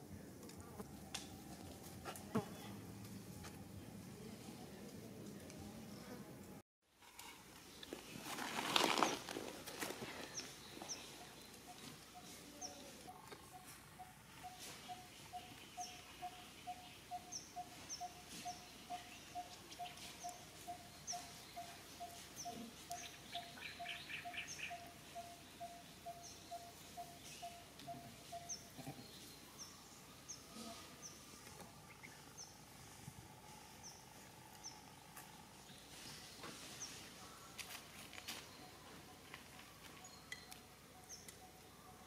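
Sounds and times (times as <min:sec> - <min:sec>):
bird calling evenly spaced notes: 0:13.4 - 0:32.7, 0:33.4 - 0:42.0.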